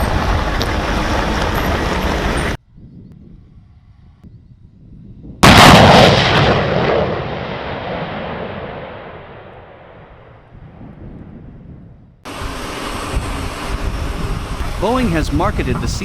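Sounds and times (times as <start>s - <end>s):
jet engine roar: 0.0s - 2.6s, 12.3s - 16.0s.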